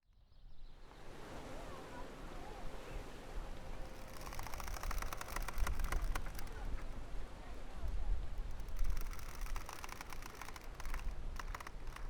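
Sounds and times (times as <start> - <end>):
wind: 0.0 - 12.0
surf: 1.4 - 7.0, 8.4 - 12.0
sharp clicking taps: 8.6 - 12.0.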